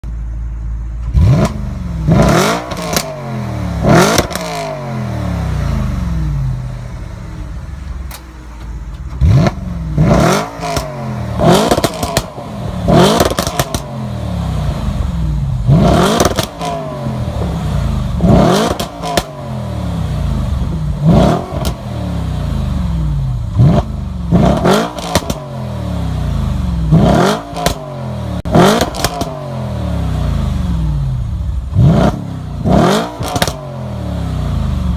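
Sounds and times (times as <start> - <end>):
car engine revving: 1.0 - 7.8, 8.7 - 34.9
exhaust pops and crackles: 11.5 - 12.4, 13.0 - 13.9, 16.1 - 16.7, 18.6 - 19.4, 25.0 - 25.4, 28.7 - 29.4, 33.2 - 33.6.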